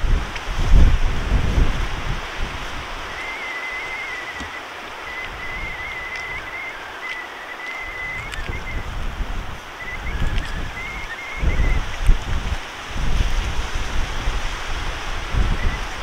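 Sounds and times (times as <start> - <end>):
outdoor hiss: 0.0 - 16.0
wind buffeting microphone: 0.0 - 16.0
faint wavering high whistle: 3.1 - 8.9, 9.8 - 12.0
faint ticks: 4.0 - 8.8.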